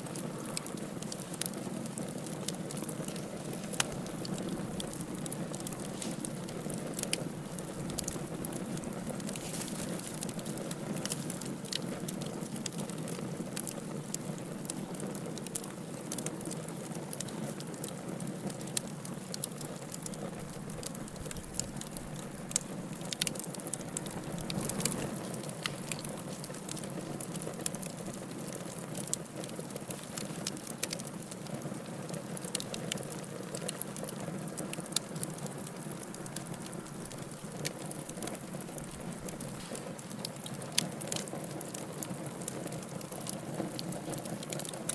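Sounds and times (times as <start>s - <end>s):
fire crackling and popping: 0.0s - 44.9s
fire flames rushing: 0.2s - 17.9s, 20.1s - 31.1s.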